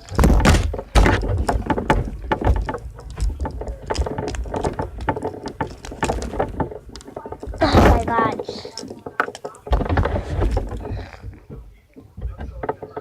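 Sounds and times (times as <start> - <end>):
toy rustling and crinkling: 1.2 - 11.4.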